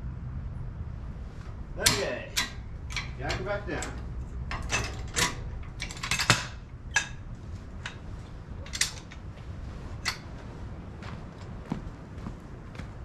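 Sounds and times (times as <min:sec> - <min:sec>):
low hum: 0:00.0 - 0:13.0
jack metallic clicks and creaks: 0:01.4 - 0:10.5.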